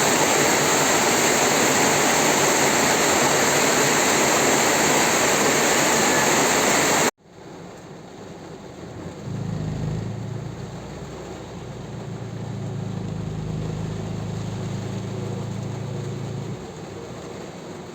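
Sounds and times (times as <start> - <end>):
heavy rain pouring: 0.0 - 7.1, 8.0 - 17.9
low engine-like hum: 8.6 - 17.9.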